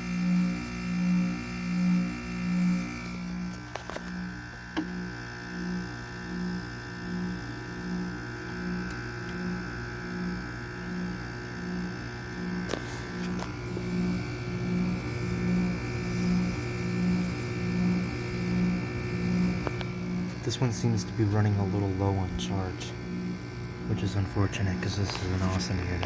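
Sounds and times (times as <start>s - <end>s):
air conditioner humming: 2.8s - 26.0s
high whine: 12.7s - 26.0s.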